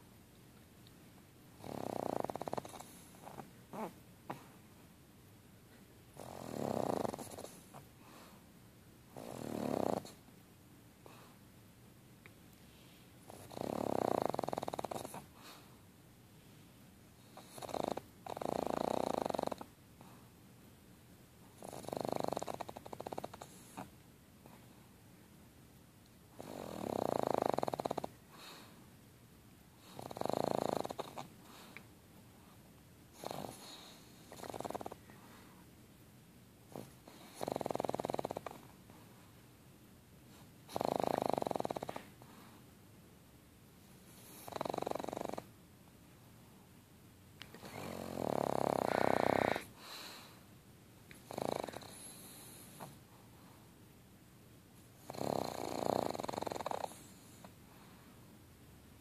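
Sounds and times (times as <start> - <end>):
dog snoring: 1.6 - 4.5, 6.2 - 8.3, 9.1 - 10.2, 13.2 - 15.7, 17.2 - 20.1, 21.6 - 24.6, 26.3 - 28.7, 29.8 - 31.8, 33.1 - 35.0, 36.7 - 38.7, 40.3 - 42.5, 44.1 - 45.5, 47.5 - 50.4, 51.1 - 53.0, 54.9 - 57.5
soft breathing: 7.2 - 8.6, 12.5 - 13.5, 14.9 - 17.4, 28.3 - 29.0, 30.9 - 35.8, 41.8 - 42.8, 48.8 - 50.6, 51.2 - 53.8, 56.8 - 58.4.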